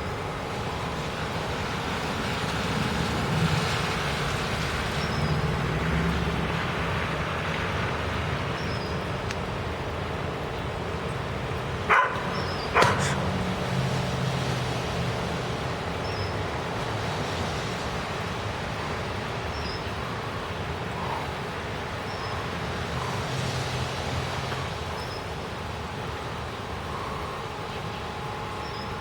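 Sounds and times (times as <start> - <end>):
dog barking: 11.9 - 13.4.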